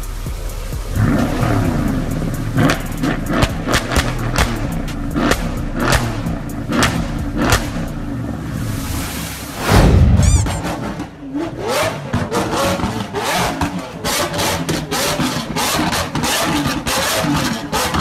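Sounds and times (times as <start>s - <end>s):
car engine revving: 0.0s - 18.0s
exhaust pops and cracks: 0.8s - 8.1s.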